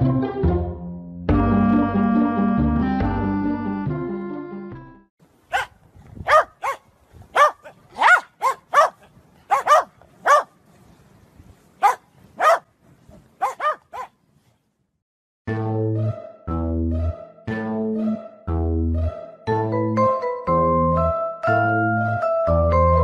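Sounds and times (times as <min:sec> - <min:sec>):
dog barking: 0:05.5 - 0:10.6, 0:11.8 - 0:12.7, 0:13.4 - 0:14.2.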